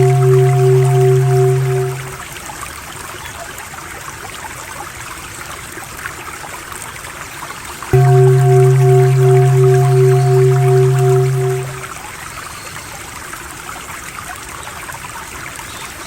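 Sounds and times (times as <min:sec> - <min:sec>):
low om drone: 0:00.0 - 0:02.3, 0:08.0 - 0:12.0
trickling water: 0:00.0 - 0:02.6, 0:03.2 - 0:12.9.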